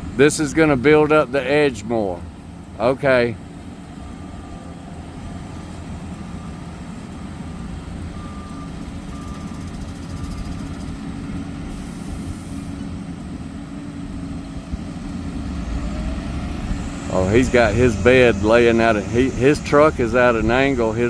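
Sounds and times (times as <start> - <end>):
diesel engine running: 0.0 - 21.0
backup alarm beeping: 6.1 - 11.0.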